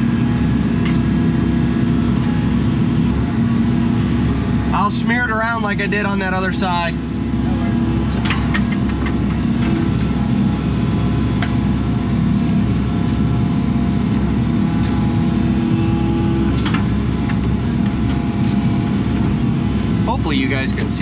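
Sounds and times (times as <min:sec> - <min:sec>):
diesel engine under load: 0:00.0 - 0:21.0.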